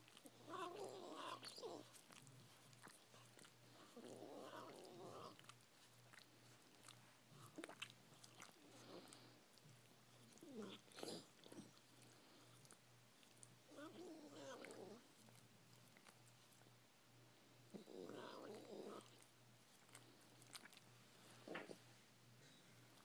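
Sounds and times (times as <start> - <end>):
dog licking and lapping: 0.0 - 13.6, 19.7 - 20.9
dog vocal noise: 0.0 - 16.7, 17.7 - 19.2.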